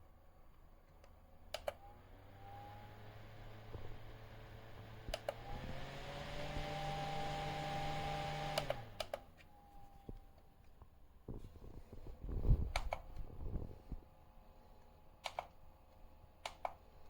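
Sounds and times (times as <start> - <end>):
desk fan running: 1.3 - 10.4
fan switch clicks: 1.5 - 1.8, 5.1 - 5.5, 8.5 - 9.3, 12.7 - 13.2, 15.2 - 15.6, 16.4 - 16.8.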